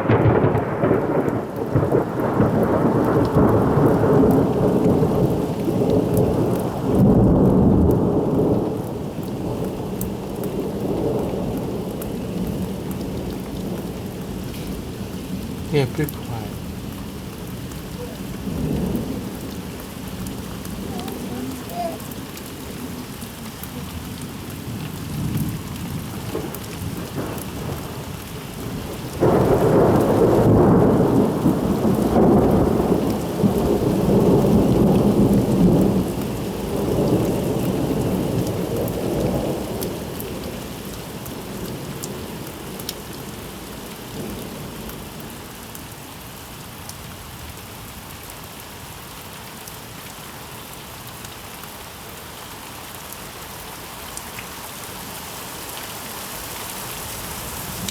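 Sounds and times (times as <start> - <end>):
thunder rolling and rumbling: 0.0 - 15.7, 23.9 - 40.6
steady rain: 0.0 - 57.9.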